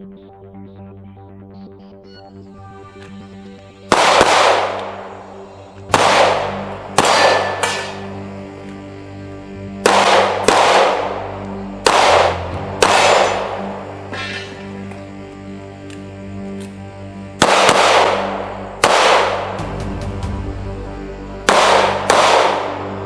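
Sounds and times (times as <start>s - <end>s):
held drone chord: 0.0s - 23.0s
loud musical hits: 3.9s - 8.4s, 9.4s - 14.8s, 17.4s - 23.0s.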